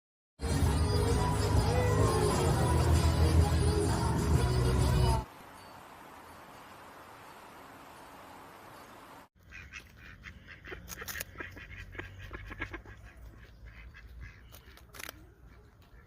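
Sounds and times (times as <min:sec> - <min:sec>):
waterfowl calling: 0:09.4 - 0:16.0.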